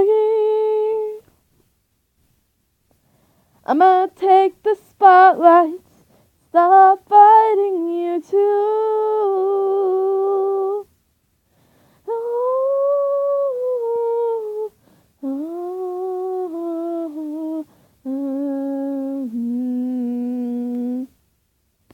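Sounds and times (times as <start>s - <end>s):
person humming a slow tune: 12.1s - 21.2s.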